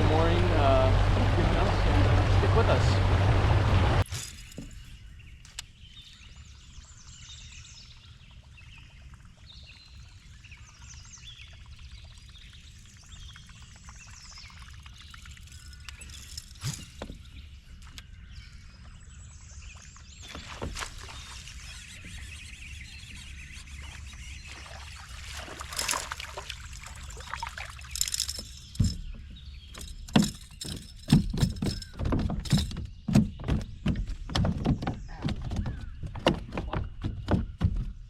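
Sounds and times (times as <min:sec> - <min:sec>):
water splashing: 0:00.0 - 0:04.1, 0:19.8 - 0:22.1, 0:23.8 - 0:29.2
boat engine rumble: 0:00.0 - 0:05.1, 0:12.6 - 0:38.0
knocks and thuds against boat: 0:28.7 - 0:38.0.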